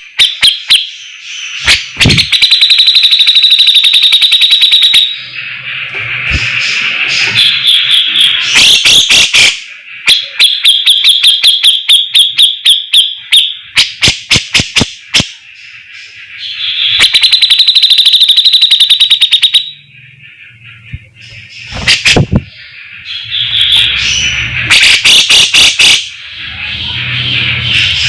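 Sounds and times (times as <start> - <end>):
bird singing sharp repeated notes: 0.0 - 28.0.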